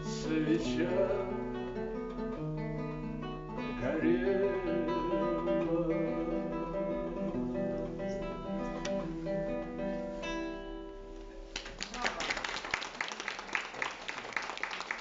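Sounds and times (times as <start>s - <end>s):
acoustic guitar chords: 0.0s - 11.6s
audience applause: 11.6s - 15.0s.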